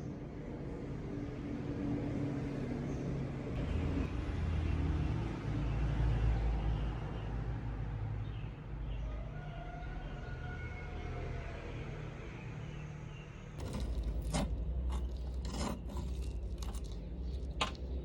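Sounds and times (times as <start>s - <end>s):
mechanical rumble with hum: 13.6s - 18.0s.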